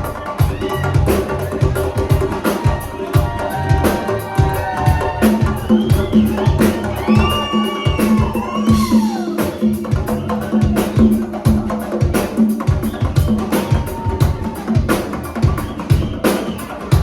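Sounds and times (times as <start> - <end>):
hand drums: 0.0 - 17.0
live band music: 0.0 - 17.0
falling vocal whoop: 0.2 - 9.8, 13.4 - 14.9.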